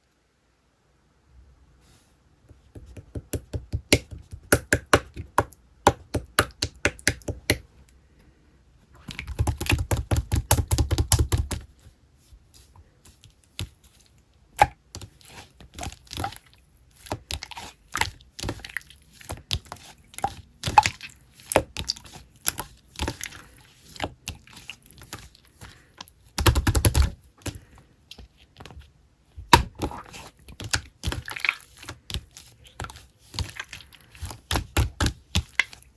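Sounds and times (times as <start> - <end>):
sharp clicks and taps: 2.7 - 7.6.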